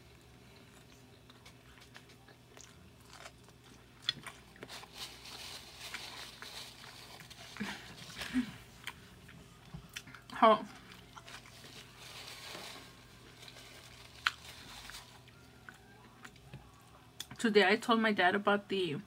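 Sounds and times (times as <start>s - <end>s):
wet chewing: 0.4s - 4.9s, 5.9s - 11.9s.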